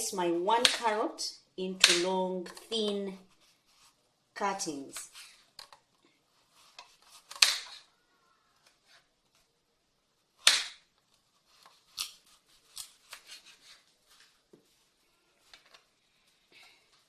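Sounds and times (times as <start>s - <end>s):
knife cutting on a cutting board: 11.5s - 13.8s.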